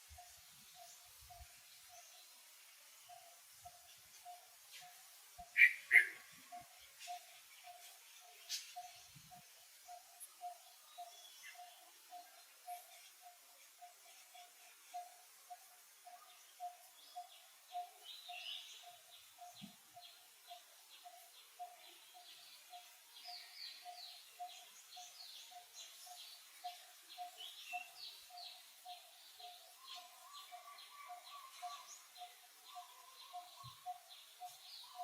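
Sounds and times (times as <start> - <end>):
bird chirps: 3.0 - 35.0
repeated low bird call: 5.4 - 7.9.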